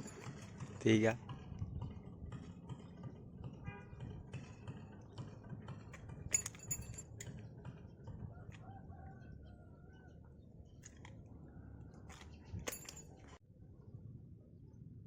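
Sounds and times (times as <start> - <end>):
light clicks and clinks: 6.3 - 7.4, 12.1 - 13.4.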